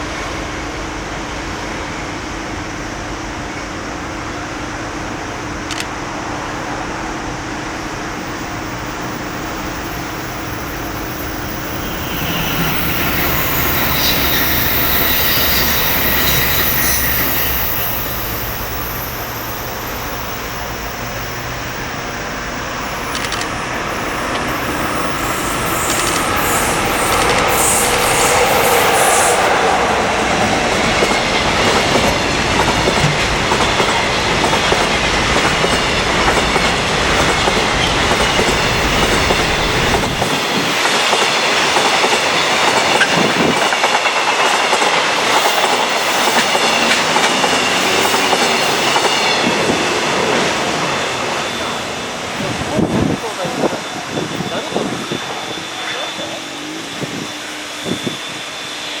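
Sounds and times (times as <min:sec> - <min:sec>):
electric locomotive passing: 0:00.0 - 0:59.0
high wheel squeal: 0:08.1 - 0:30.9, 0:45.3 - 0:59.0
wheels clacking over rail joints: 0:22.8 - 0:50.7.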